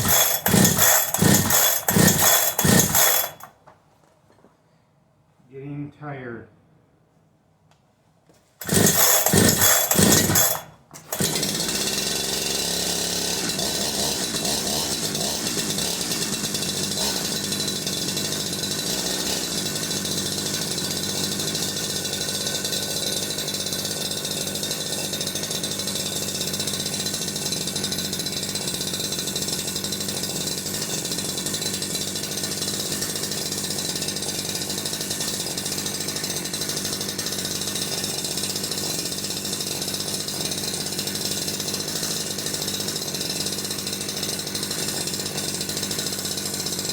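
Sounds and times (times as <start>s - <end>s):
chainsaw starting and running: 0.0s - 3.6s, 8.6s - 46.9s.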